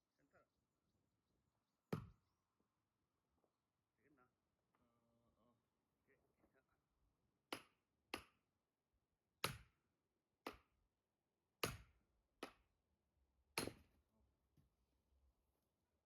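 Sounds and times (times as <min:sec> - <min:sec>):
blade chopping firewood: 0:01.9 - 0:02.2, 0:07.5 - 0:08.4, 0:09.4 - 0:09.8, 0:10.4 - 0:10.7, 0:11.6 - 0:12.7, 0:13.6 - 0:14.0.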